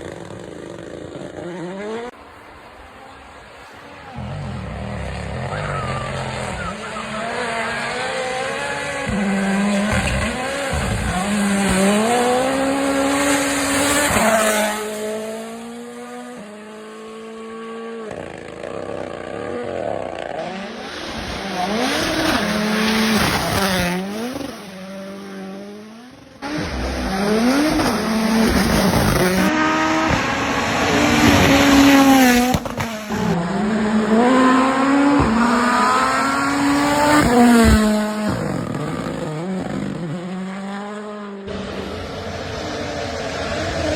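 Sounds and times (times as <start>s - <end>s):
rally car engines revving hard: 4.0s - 43.9s
tyre noise: 4.1s - 14.5s.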